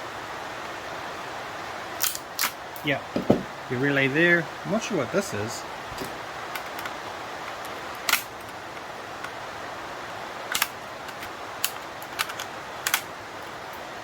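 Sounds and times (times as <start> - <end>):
rain hissing: 0.0 - 14.0
small parts clicking: 10.5 - 13.5.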